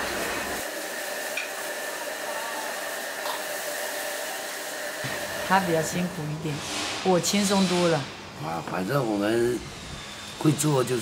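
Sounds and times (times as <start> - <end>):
wok frying hiss: 0.0 - 8.4.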